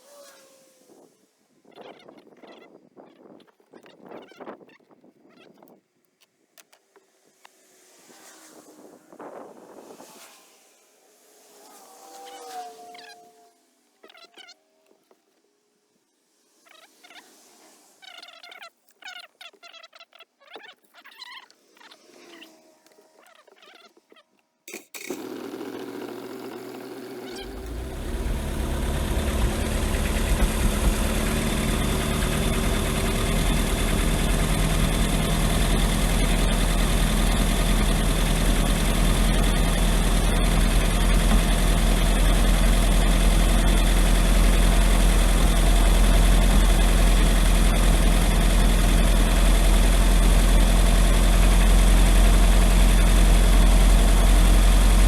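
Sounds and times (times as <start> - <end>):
boat engine starting and running: 24.7 - 55.0.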